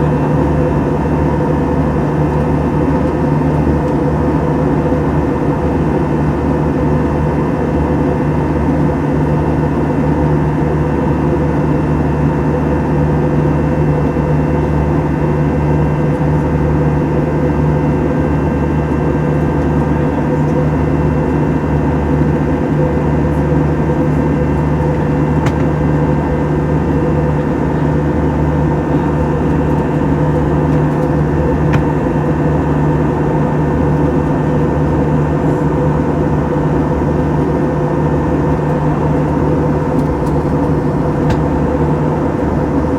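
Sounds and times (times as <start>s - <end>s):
airplane engine drone in cabin: 0.0s - 42.9s
steady hum tones: 34.0s - 42.9s.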